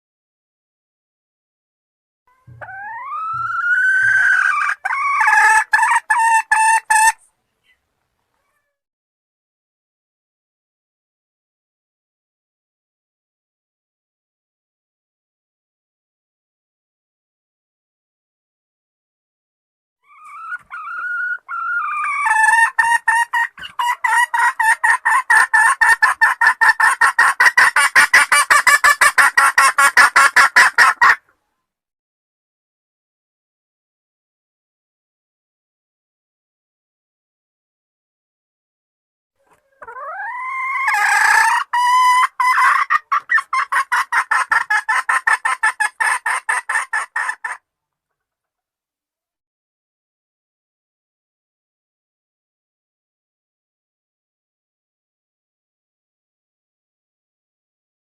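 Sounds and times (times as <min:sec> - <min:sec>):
hen calling: 0:02.3 - 0:07.8
hen calling and clucking: 0:02.3 - 0:08.7, 0:20.0 - 0:31.4, 0:39.4 - 0:48.2.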